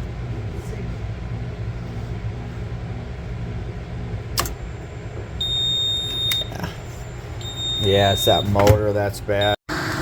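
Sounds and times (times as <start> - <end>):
exhaust fan humming: 0.0 - 10.0
sharp click: 4.4 - 4.6.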